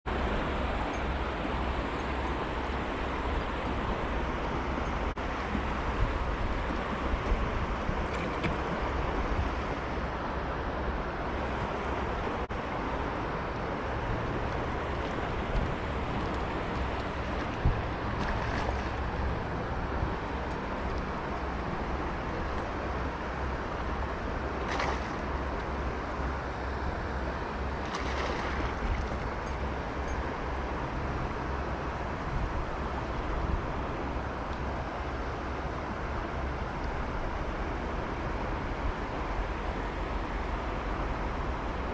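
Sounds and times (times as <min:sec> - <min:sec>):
wind on microphone: 0:00.1 - 0:26.0
water swishes: 0:00.1 - 0:38.0
river water flowing: 0:00.1 - 0:41.9.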